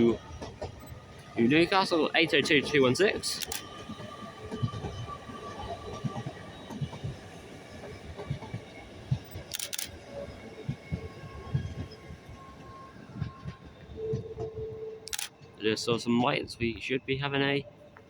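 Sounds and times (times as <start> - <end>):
camera shutter clicks: 3.4 - 3.6, 9.5 - 9.9, 15.1 - 15.3.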